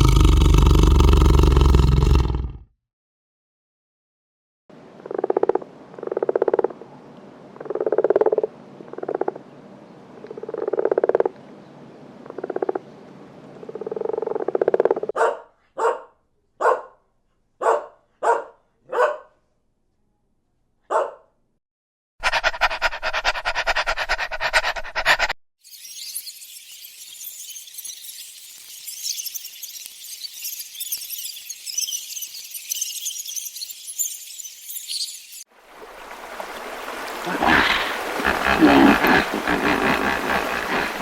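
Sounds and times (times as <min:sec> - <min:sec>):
buzzy pulsed animal calls: 0:37.3 - 0:41.0.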